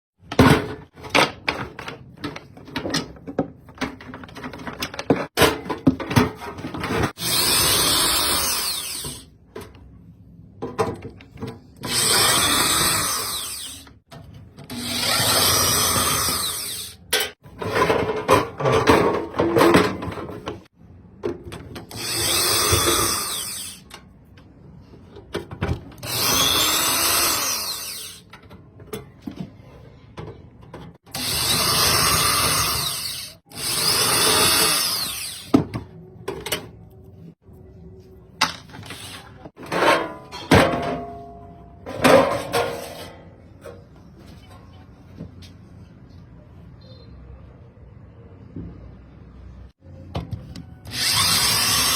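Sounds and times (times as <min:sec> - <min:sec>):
tool handling clicks and knocks: 0:00.2 - 0:07.2
power drill whining: 0:07.2 - 0:09.2, 0:11.9 - 0:13.9, 0:14.7 - 0:17.0, 0:21.9 - 0:23.8, 0:26.0 - 0:28.2, 0:31.2 - 0:35.5, 0:50.9 - 0:51.9.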